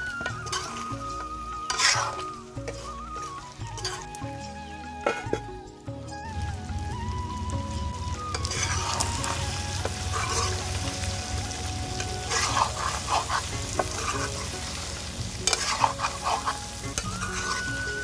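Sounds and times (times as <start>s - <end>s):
metal spatula scraping pan: 0.0s - 4.2s, 8.3s - 10.8s, 12.0s - 18.0s
curry sizzling in a pan: 0.0s - 18.0s.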